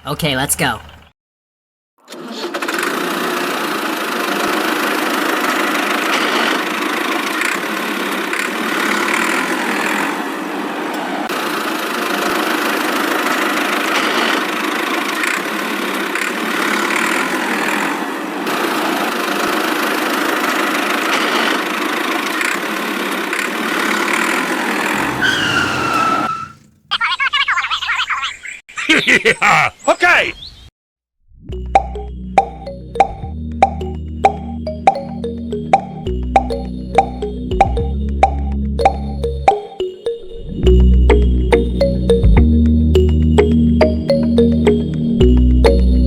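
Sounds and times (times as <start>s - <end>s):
toy tractor engine drone: 2.0s - 10.6s, 11.3s - 27.2s.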